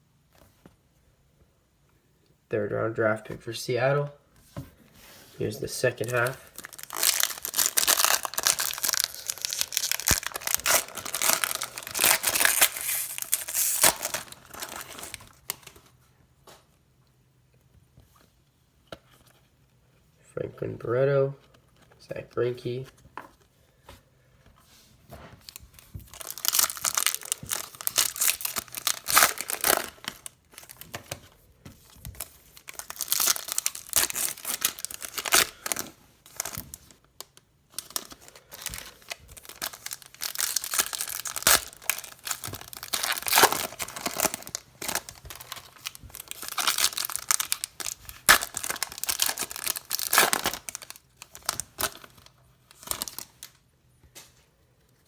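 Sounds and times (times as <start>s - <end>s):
foil wrappers tearing and crinkling: 5.9s - 15.8s, 25.5s - 31.2s, 31.8s - 37.0s, 37.8s - 53.5s.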